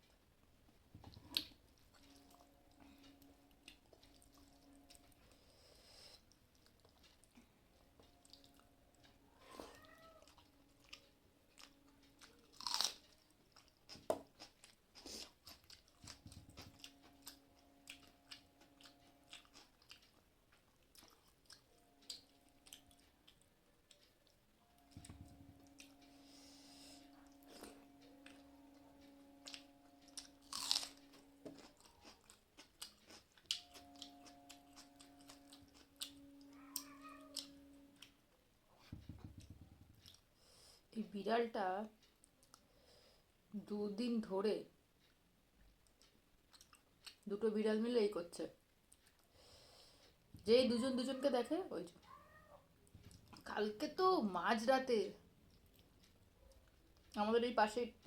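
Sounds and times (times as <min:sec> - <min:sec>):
faint steady hum: 0:00.0 - 0:58.0
person chewing and crunching food: 0:01.1 - 0:38.2, 0:45.8 - 0:47.3, 0:48.9 - 0:50.2.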